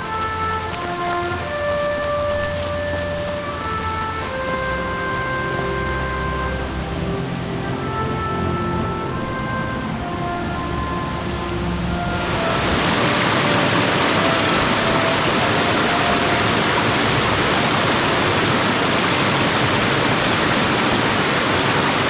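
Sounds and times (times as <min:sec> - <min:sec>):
creek water rushing: 0:00.0 - 0:22.0
faint music: 0:00.0 - 0:22.0.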